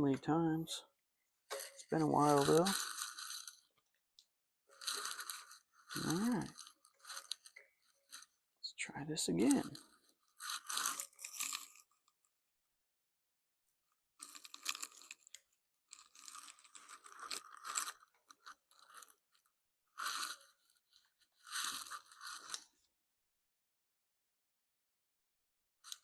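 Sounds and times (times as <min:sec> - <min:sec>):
parts rubbing and scraping: 0:01.5 - 0:03.7, 0:04.7 - 0:08.4, 0:21.4 - 0:22.6.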